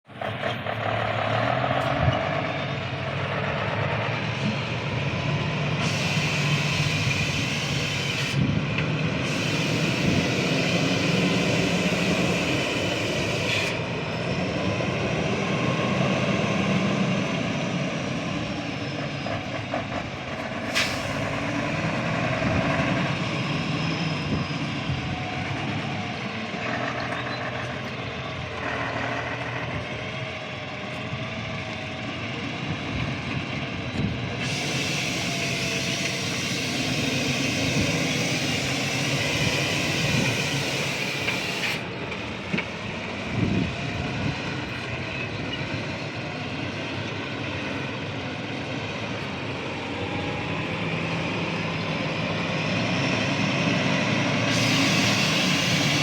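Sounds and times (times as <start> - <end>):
truck engine rumble: 0.0 - 56.0.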